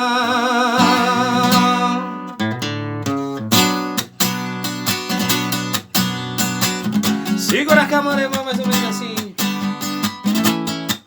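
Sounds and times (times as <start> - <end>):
man singing with vibrato: 0.0 - 2.4, 7.3 - 9.5
acoustic guitar strumming chords: 0.0 - 11.0.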